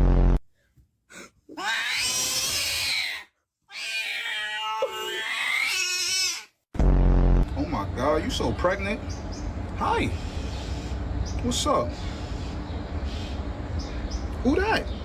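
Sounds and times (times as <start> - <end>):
cat yowling: 1.5 - 6.5.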